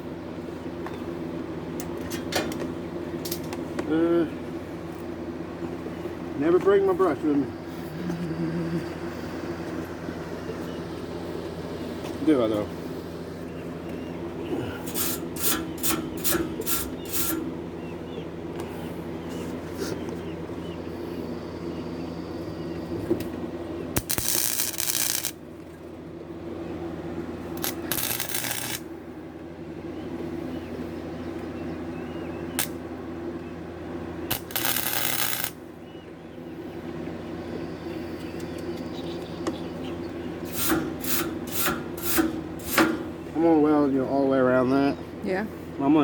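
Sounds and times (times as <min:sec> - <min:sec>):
steady hum: 0:00.0 - 0:46.0
welding arc crackling: 0:14.8 - 0:17.4, 0:23.9 - 0:25.4, 0:27.6 - 0:28.9, 0:34.3 - 0:35.6.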